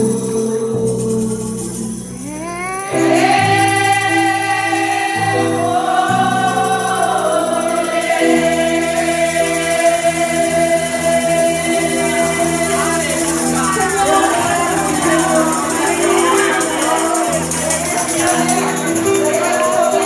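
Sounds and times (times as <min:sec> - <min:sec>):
group gospel singing: 0:00.0 - 0:20.0
sustained held chords: 0:02.0 - 0:17.6.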